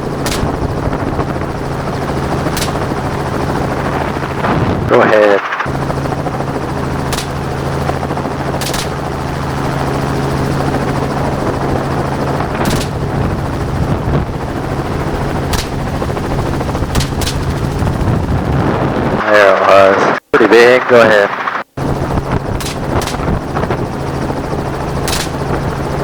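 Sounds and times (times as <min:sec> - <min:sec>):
helicopter rotor drone: 0:00.0 - 0:26.0
gunshots: 0:00.2 - 0:01.2, 0:02.5 - 0:03.0, 0:07.1 - 0:07.6, 0:08.6 - 0:09.1, 0:12.6 - 0:13.2, 0:15.5 - 0:16.0, 0:16.9 - 0:17.6, 0:22.6 - 0:23.4, 0:25.0 - 0:25.6.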